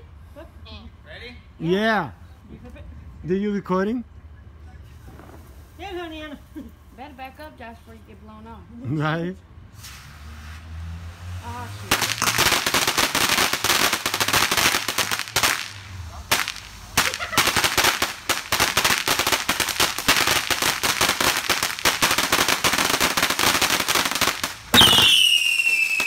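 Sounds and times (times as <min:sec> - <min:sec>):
firecrackers cracking: 0:05.0 - 0:05.8, 0:09.8 - 0:26.0
falling whistle: 0:24.8 - 0:26.0.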